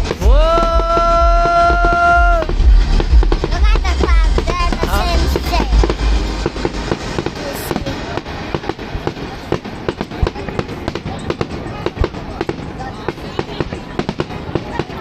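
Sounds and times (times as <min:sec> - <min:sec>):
loud music with heavy bass: 0:00.0 - 0:08.3
fireworks crackling and popping: 0:00.0 - 0:15.0.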